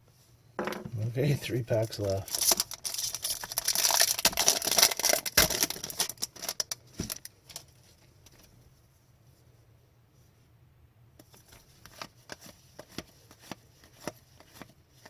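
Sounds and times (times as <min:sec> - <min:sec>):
foil wrapper tearing and crinkling: 0:02.2 - 0:07.6.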